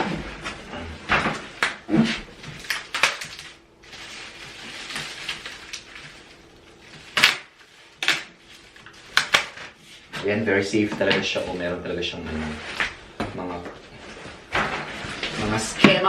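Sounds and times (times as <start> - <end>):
packaging rustling: 2.0 - 10.1.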